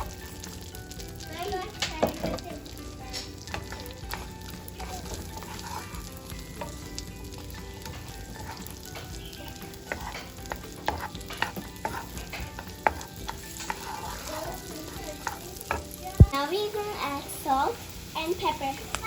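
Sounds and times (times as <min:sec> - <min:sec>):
onions sizzling in a pan: 0:00.0 - 0:19.0
spatula knocking against pan: 0:01.8 - 0:02.4, 0:03.4 - 0:04.3, 0:07.8 - 0:14.2.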